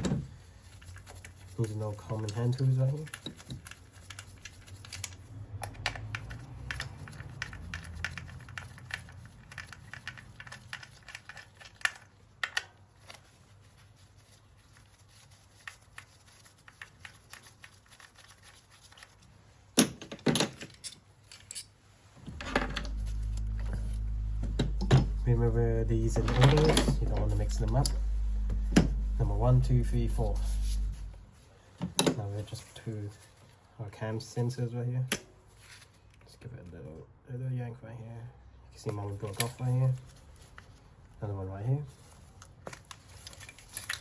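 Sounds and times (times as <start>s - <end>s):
low steady hum: 22.1s - 31.7s.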